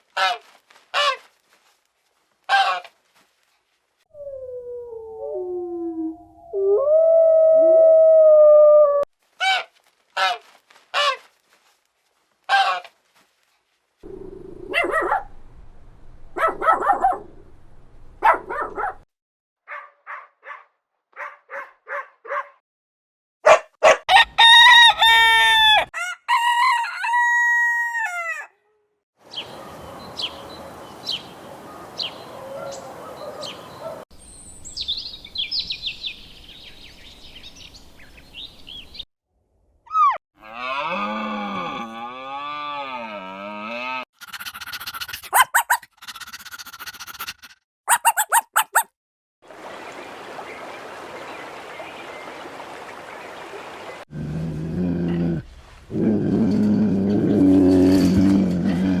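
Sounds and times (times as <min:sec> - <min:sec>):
rooster crowing: 0:24.1 - 0:28.5
high chirping: 0:47.9 - 0:48.9.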